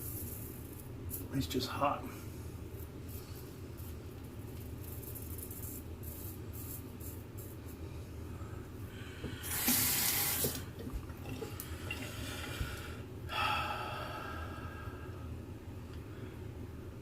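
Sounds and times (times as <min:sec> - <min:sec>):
faucet running into sink: 0:09.4 - 0:12.2.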